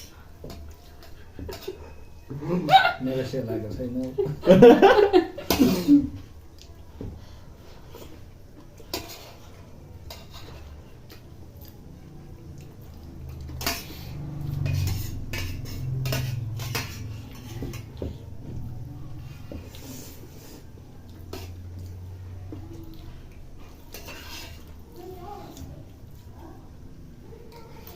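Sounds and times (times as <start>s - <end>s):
cutlery clinking on dishes: 0.4s - 2.0s, 8.8s - 11.3s, 13.3s - 18.2s, 23.7s - 24.8s.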